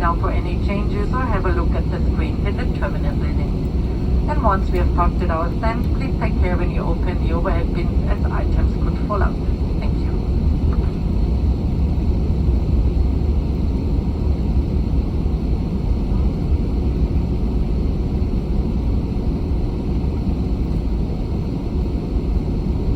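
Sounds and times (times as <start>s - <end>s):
low rumble of jet engines idling: 0.0s - 22.9s.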